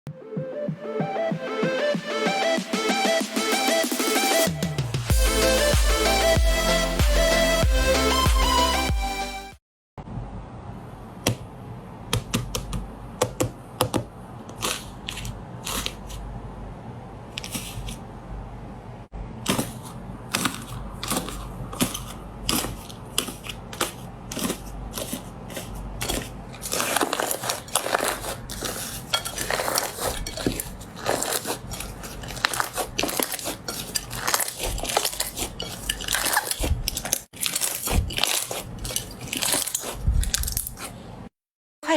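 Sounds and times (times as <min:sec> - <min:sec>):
slime squished by hand: 0:19.5 - 0:41.0.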